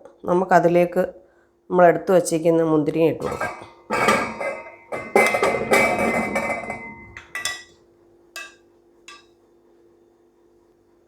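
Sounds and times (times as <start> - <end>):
grapes clattering into metal pot: 3.2 - 7.8, 8.4 - 9.3
pot ringing: 3.2 - 7.8, 8.4 - 9.3.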